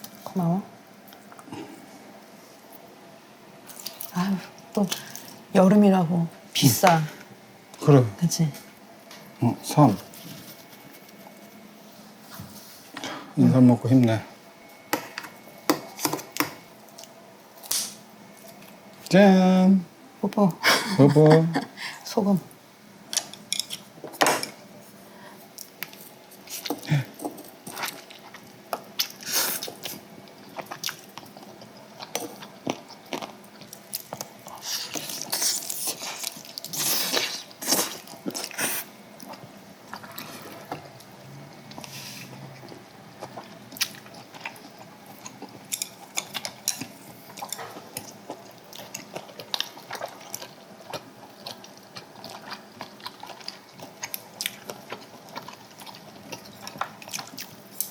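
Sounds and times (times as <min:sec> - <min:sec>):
wet chewing and biting: 0:42.6 - 0:57.9.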